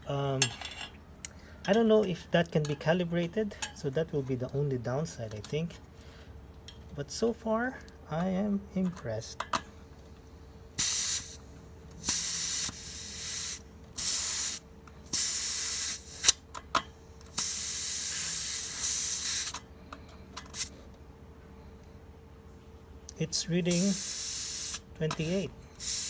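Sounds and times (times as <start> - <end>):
air hissing from tyre valve: 10.8 - 16.4, 17.3 - 19.7, 20.4 - 20.8, 23.6 - 26.0.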